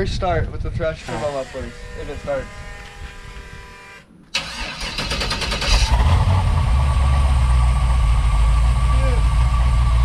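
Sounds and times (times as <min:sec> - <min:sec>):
engine starter cranking: 0:04.3 - 0:06.4
engine idling: 0:04.4 - 0:10.0.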